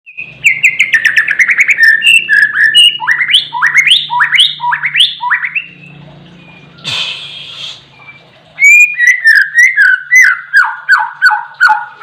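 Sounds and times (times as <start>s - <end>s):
songbird chirping: 0.1s - 6.8s
bird whistles sweeping upward: 8.6s - 11.8s.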